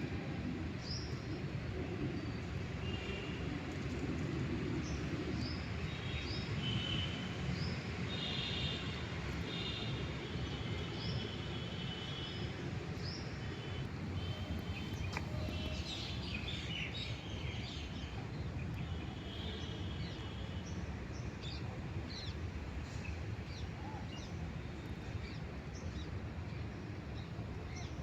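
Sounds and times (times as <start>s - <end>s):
small birds trilling and chirping: 13.0s - 22.4s.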